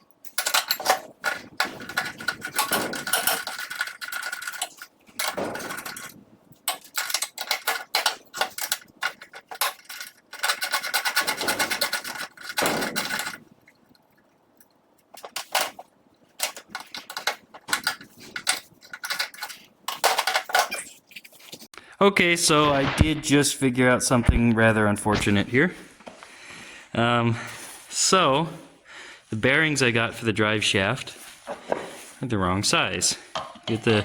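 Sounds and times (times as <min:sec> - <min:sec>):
metal tools clicking and scraping: 0:00.0 - 0:13.5, 0:14.6 - 0:21.7.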